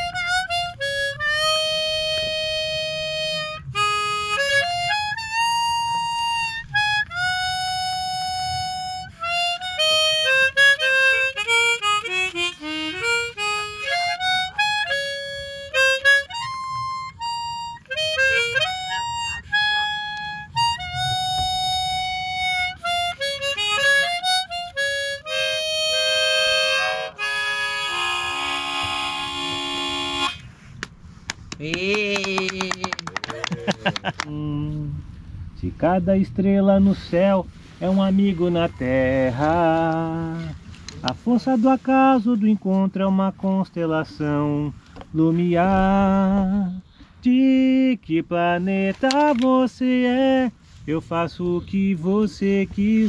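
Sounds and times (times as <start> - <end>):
solo harmonica melody: 0.0 - 30.7.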